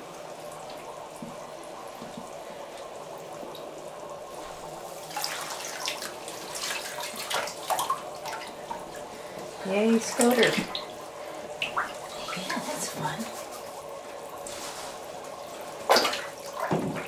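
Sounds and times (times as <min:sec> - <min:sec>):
water trickling in a tub: 0:00.0 - 0:17.0
water splashing: 0:04.3 - 0:17.0.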